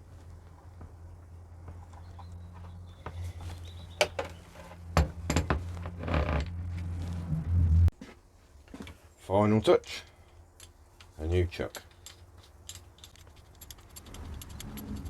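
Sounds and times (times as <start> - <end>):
steady low hum: 0.0 - 8.0
metal parts clicking and rattling: 10.6 - 15.0.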